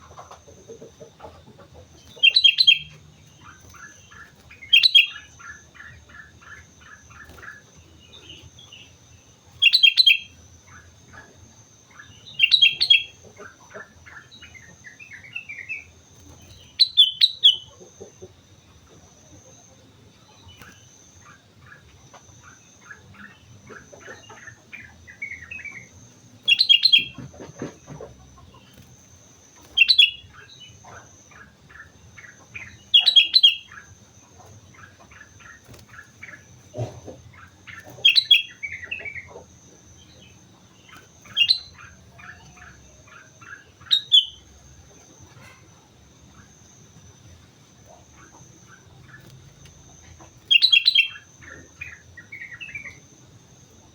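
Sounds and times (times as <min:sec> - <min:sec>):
soft bird chirps: 0:00.0 - 0:53.9
bulbul singing loud phrases: 0:02.0 - 0:17.7, 0:22.5 - 0:27.7, 0:29.6 - 0:45.8, 0:50.4 - 0:53.1.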